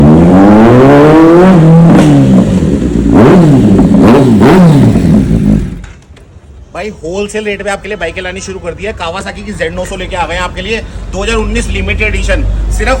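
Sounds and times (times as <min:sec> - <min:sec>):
motorcycle engine revving: 0:00.0 - 0:06.0.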